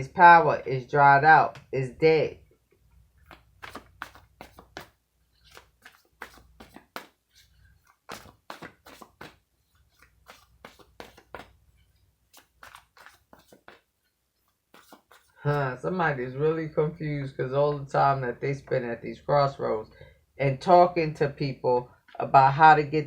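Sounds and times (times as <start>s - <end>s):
cards being shuffled: 3.3s - 11.6s, 12.3s - 15.4s.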